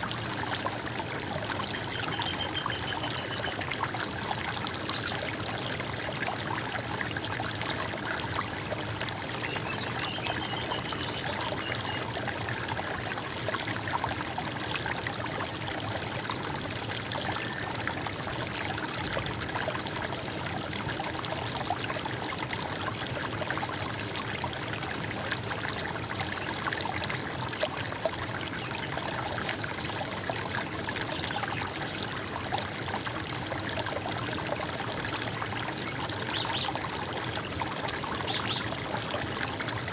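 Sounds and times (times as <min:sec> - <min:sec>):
water gurgling in a stream: 0:00.0 - 0:39.9.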